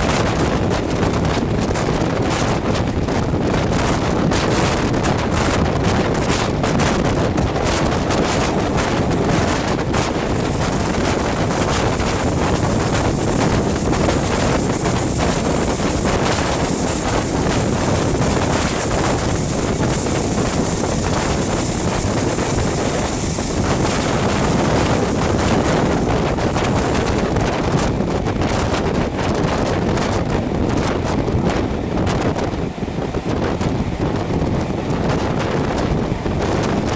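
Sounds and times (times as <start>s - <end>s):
train running noise: 0.0s - 36.9s
wind rushing over microphone: 0.0s - 36.9s.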